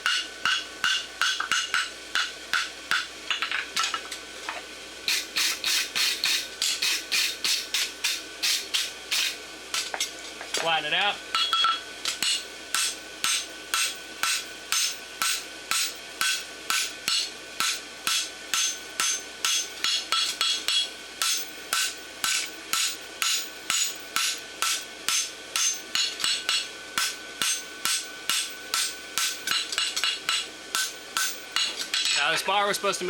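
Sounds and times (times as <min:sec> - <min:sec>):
hammer ringing on anvil: 0:00.0 - 0:03.0, 0:11.3 - 0:32.3.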